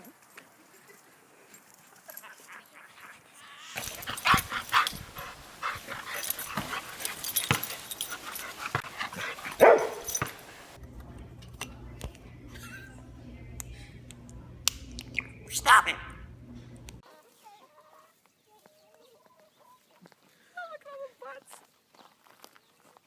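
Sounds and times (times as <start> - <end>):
dog barking and yipping: 2.2 - 10.8.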